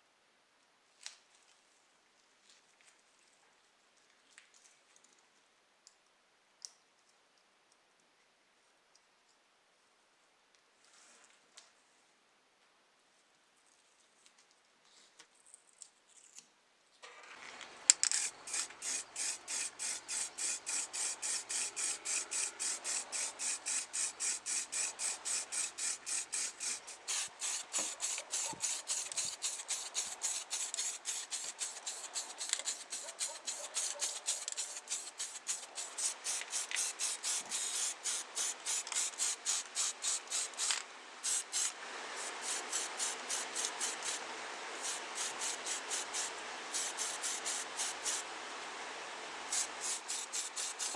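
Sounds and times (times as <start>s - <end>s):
hand rubbing strokes: 18.2s - 44.2s, 44.8s - 48.2s, 49.5s - 50.9s.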